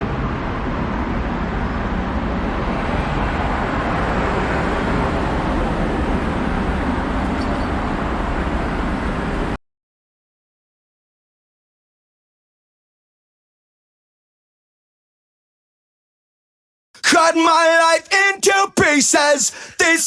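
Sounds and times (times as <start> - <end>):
road traffic rush: 0.0 - 9.6, 17.0 - 20.0.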